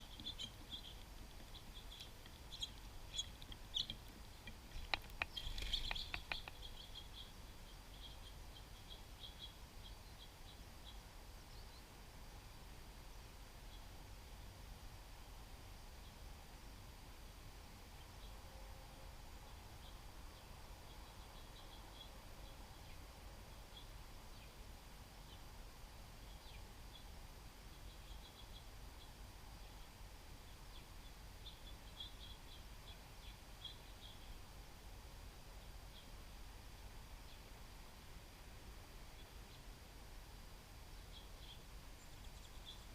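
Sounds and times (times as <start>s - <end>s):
songbird chip notes: 0.0s - 11.9s
songbirds chirping: 0.0s - 42.9s
sharp clicks: 3.4s - 6.8s.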